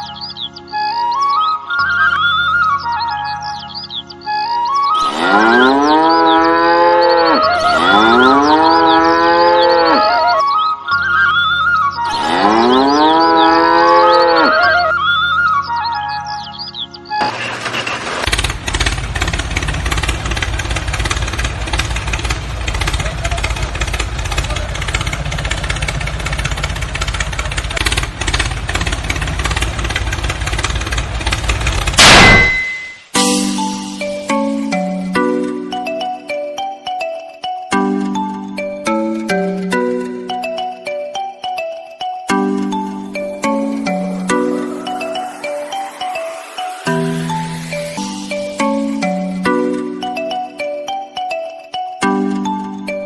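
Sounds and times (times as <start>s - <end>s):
birds chirping: 0.0s - 17.2s
flute-like background music: 0.0s - 17.5s, 32.6s - 53.0s
cow mooing: 5.0s - 10.4s, 12.1s - 14.9s
small motor rattling: 17.2s - 32.0s.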